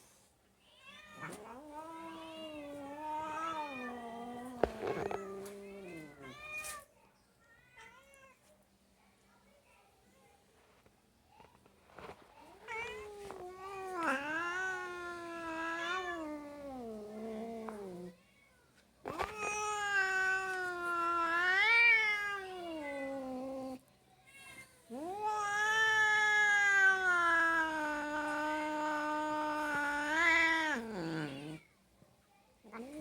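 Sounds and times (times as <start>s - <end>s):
cats yowling: 19.1s - 23.8s, 24.9s - 31.6s.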